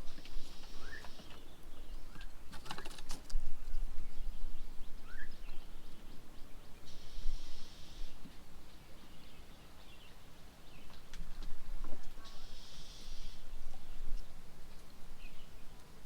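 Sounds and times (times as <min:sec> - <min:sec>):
bird chirps: 0:00.1 - 0:02.3
high hiss: 0:06.9 - 0:08.2, 0:12.3 - 0:13.5.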